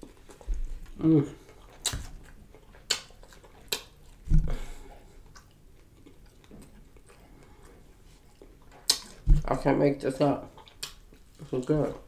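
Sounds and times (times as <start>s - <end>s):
chewing fried fish: 0.0s - 12.0s.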